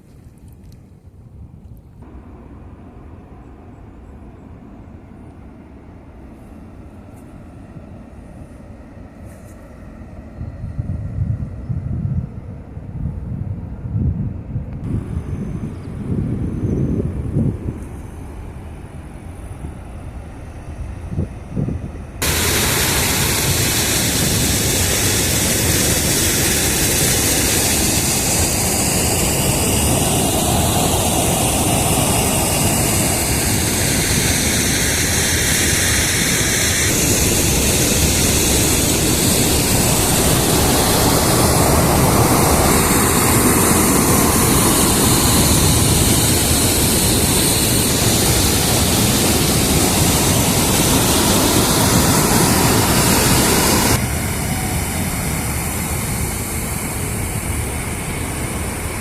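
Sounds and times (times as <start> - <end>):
water rushing over spillway: 22.2 - 59.0.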